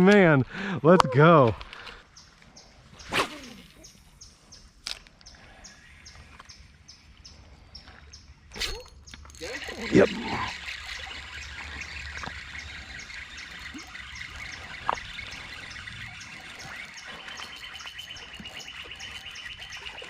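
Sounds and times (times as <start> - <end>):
birds chirping: 0.0 - 20.0
trilling bird call: 8.5 - 20.0
running water: 8.8 - 20.0.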